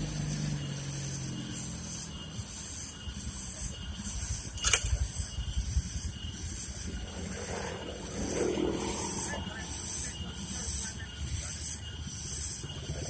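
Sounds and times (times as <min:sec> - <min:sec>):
faint high pulsing hiss: 0:00.0 - 0:13.0
heavy truck rumbling: 0:00.0 - 0:13.0
sharp click: 0:04.6 - 0:05.0.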